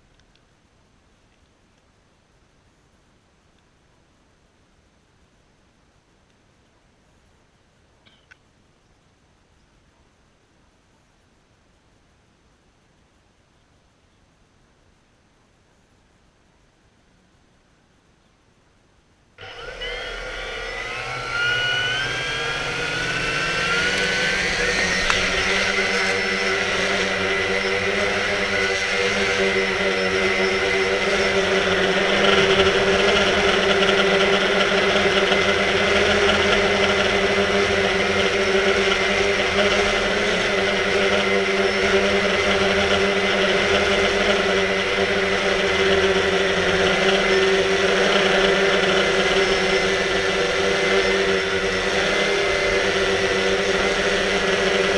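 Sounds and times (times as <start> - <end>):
drone motors whining: 19.4 - 54.9.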